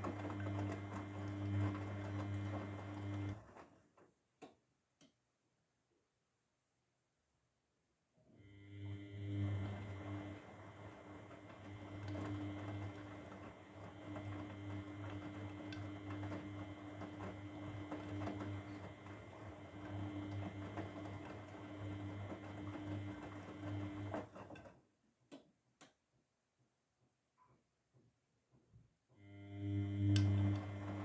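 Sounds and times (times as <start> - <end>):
washing machine humming: 0.0 - 3.6, 8.4 - 24.6, 29.2 - 31.0.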